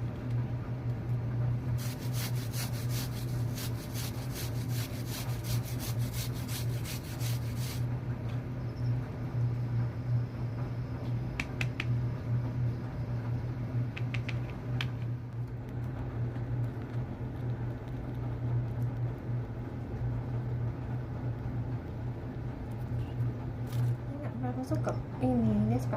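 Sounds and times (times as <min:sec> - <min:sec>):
low hum: 0:00.0 - 0:25.9
sharp clicks: 0:13.9 - 0:15.9.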